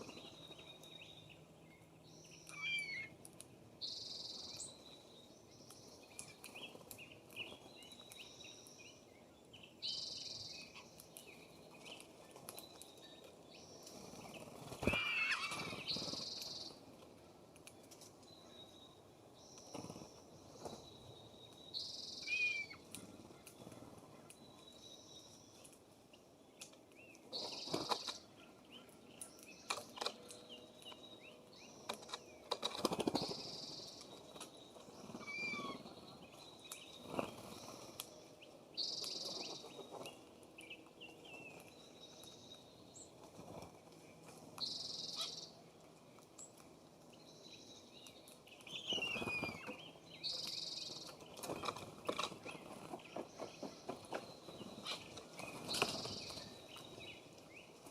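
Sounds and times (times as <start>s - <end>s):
birds pecking on wooden feeder: 48.0s - 57.9s.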